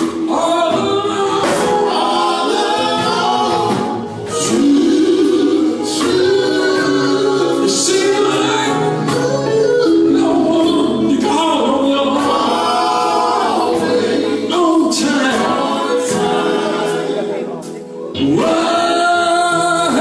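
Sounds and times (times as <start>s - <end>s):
band playing: 0.0s - 20.0s
group singing in harmony: 0.0s - 20.0s.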